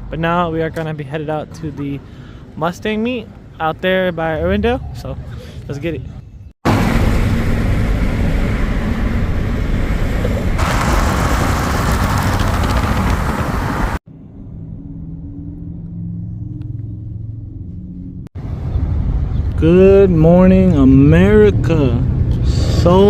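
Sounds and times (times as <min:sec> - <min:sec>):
car engine and wind noise: 0:00.0 - 0:23.0
low engine hum: 0:06.4 - 0:23.0.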